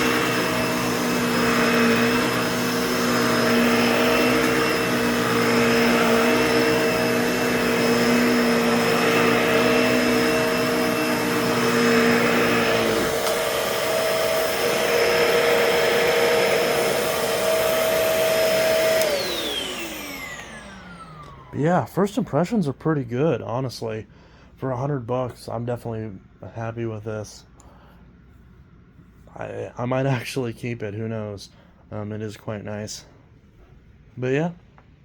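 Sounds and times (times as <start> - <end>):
vacuum motor winding down: 0.0 - 22.2
vacuum cleaner running: 0.0 - 22.6.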